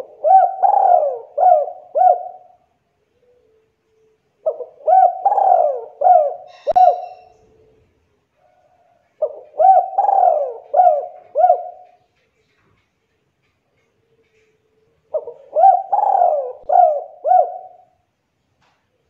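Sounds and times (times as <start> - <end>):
dove cooing: 0.0 - 3.6, 4.4 - 7.8, 8.5 - 12.1, 14.2 - 18.0.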